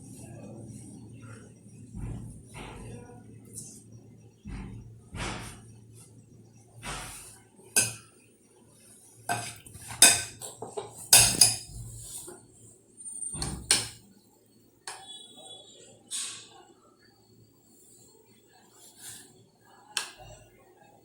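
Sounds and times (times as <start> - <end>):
spoon clinking against a cup: 9.3 - 11.8.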